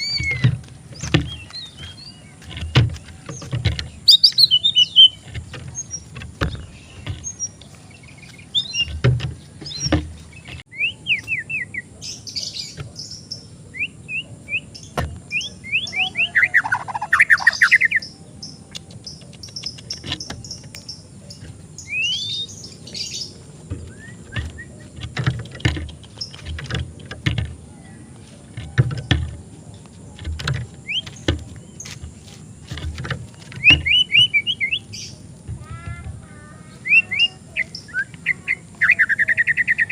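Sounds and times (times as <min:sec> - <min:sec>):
bird chirping and singing: 0:00.0 - 0:39.9
low thumps: 0:04.8 - 0:10.6
sharp knocks: 0:08.7 - 0:10.6.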